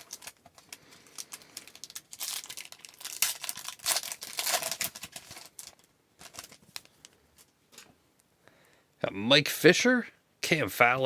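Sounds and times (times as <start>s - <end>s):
wrapper crinkling and tearing: 0.0s - 7.5s.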